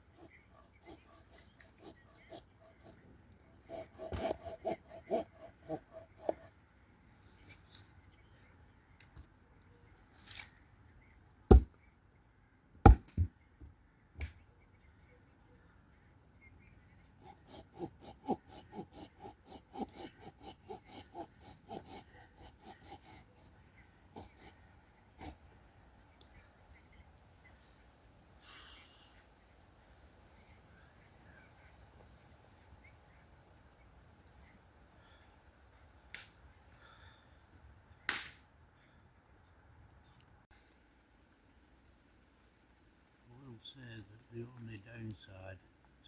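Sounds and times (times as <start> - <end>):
hand saw sawing wood: 0.0 - 6.5, 17.2 - 24.6, 25.2 - 25.4.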